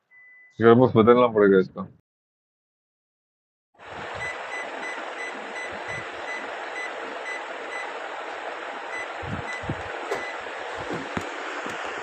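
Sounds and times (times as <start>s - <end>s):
faint high beep: 0.0s - 0.6s
washing machine running: 3.8s - 12.0s.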